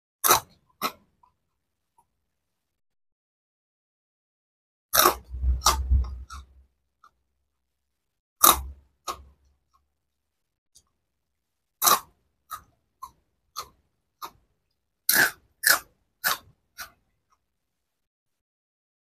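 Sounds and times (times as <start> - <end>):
crunching of puffed snack stick: 11.8 - 14.4, 15.1 - 17.0.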